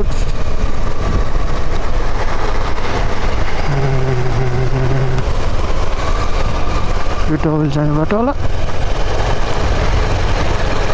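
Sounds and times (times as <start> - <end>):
wind rushing over microphone: 0.0 - 7.5
steady hum: 3.7 - 5.7
motorcycle engine running: 3.7 - 7.3.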